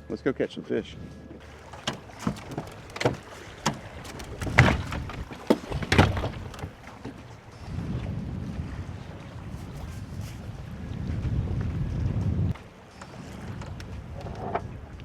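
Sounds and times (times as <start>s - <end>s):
hollow knocks on boat: 1.4s - 8.1s.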